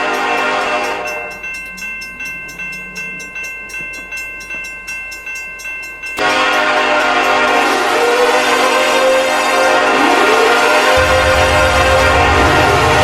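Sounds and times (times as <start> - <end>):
train horn: 0.0 - 1.4, 6.2 - 13.0
bell ringing: 0.0 - 8.9.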